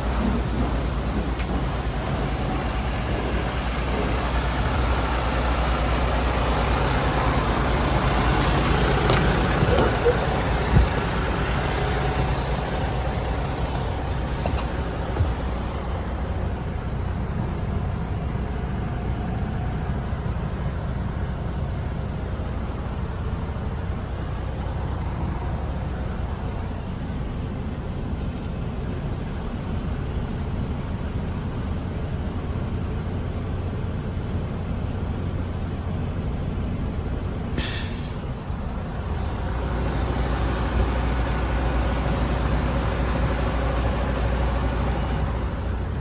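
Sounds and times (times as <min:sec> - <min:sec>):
diesel truck engine idling: 0:00.4 - 0:28.3.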